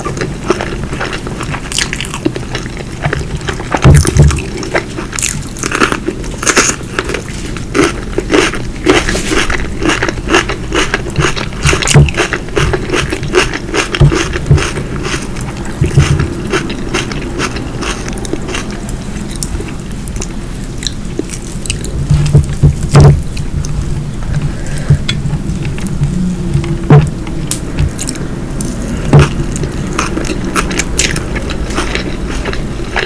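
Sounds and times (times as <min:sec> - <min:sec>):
person chewing crunchy food: 0:00.0 - 0:33.0
low thumps: 0:21.7 - 0:31.4.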